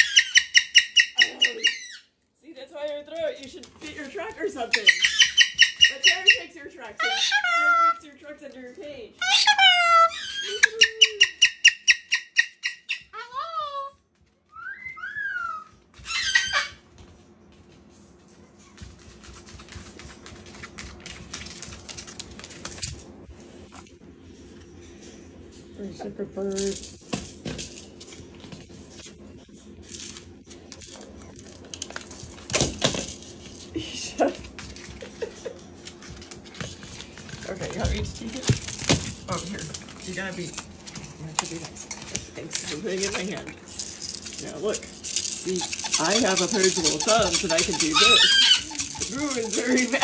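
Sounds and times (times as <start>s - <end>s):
parrot harsh squawk: 0.0s - 2.1s, 4.7s - 8.0s, 9.2s - 13.8s, 14.6s - 16.8s, 45.6s - 50.0s
parrot squeaks and whistles: 0.0s - 2.1s, 4.7s - 7.9s, 9.2s - 13.5s, 14.5s - 16.8s, 45.4s - 50.0s
small hard objects clattering: 36.5s - 50.0s.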